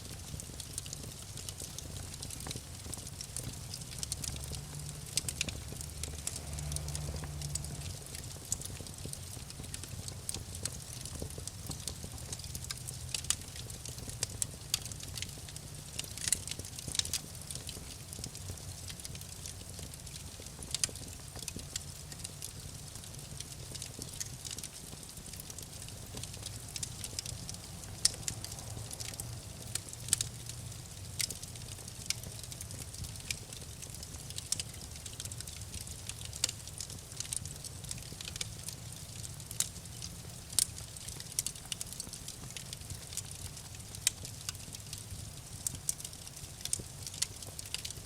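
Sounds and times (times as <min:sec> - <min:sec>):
wood fire crackling: 0:00.0 - 0:48.0
low rumble: 0:05.6 - 0:08.1.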